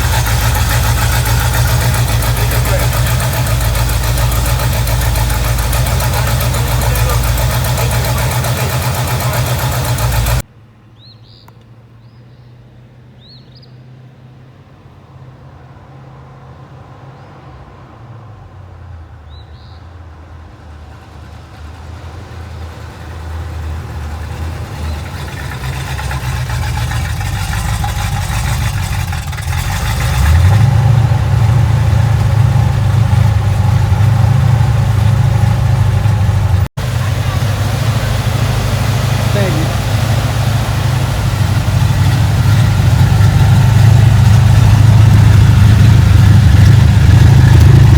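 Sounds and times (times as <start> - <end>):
car engine idling loudly: 0.0 - 10.4, 20.4 - 47.9
car approaching: 0.0 - 47.9.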